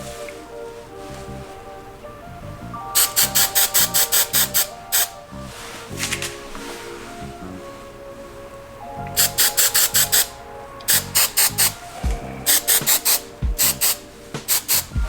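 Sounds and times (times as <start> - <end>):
background music: 0.0 - 15.0
hairspray spritzes: 3.0 - 5.2, 9.2 - 10.3, 10.9 - 11.8, 12.5 - 15.0.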